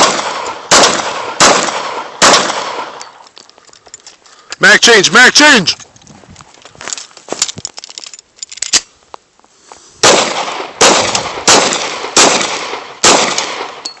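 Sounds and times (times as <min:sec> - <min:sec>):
loud gunshots ringing out: 0:00.0 - 0:03.0, 0:10.0 - 0:13.8.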